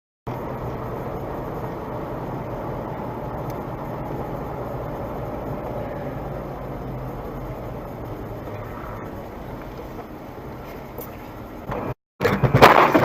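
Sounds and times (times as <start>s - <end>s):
car driving rumble: 0.3s - 13.0s.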